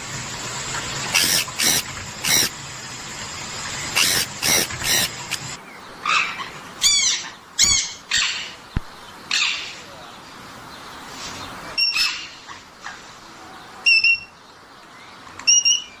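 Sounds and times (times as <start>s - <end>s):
parrot squawks: 6.0s - 8.6s.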